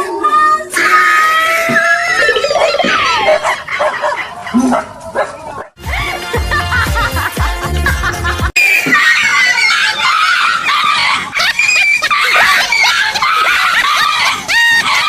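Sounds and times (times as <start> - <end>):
dog screaming and yelping: 1.8 - 5.8, 8.9 - 15.0.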